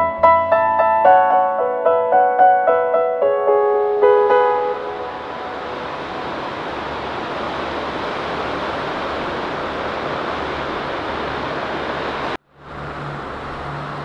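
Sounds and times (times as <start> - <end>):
ocean surf breaking: 3.5 - 14.0
wind on microphone: 4.0 - 14.0.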